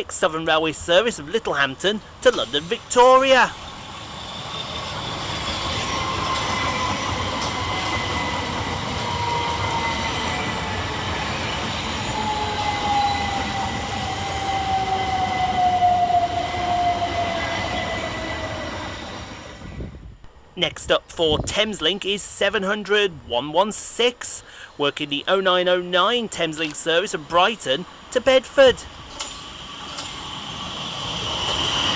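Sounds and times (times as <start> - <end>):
electric train motor whine: 3.6 - 19.4
wheel and rail rumble: 26.4 - 31.9.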